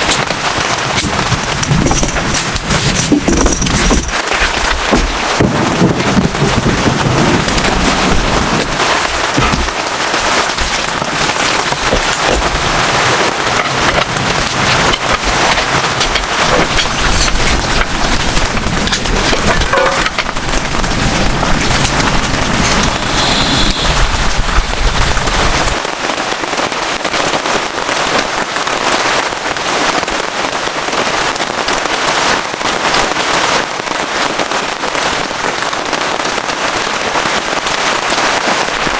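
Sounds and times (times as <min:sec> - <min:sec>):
low wind rumble: 0:00.0 - 0:27.9
heavy rain: 0:00.0 - 0:38.9.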